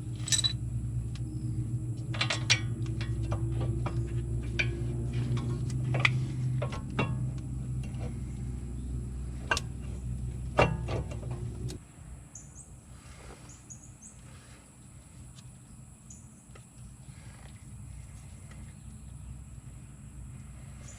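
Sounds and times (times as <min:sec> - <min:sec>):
metal tools clinking and knocking: 0:00.0 - 0:00.6
machine hum: 0:00.0 - 0:11.8.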